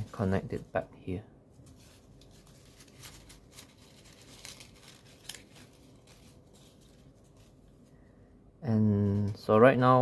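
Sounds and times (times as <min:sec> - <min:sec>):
paper rustling and crinkling: 0:01.5 - 0:07.9
crisp paper clicks: 0:01.7 - 0:07.2.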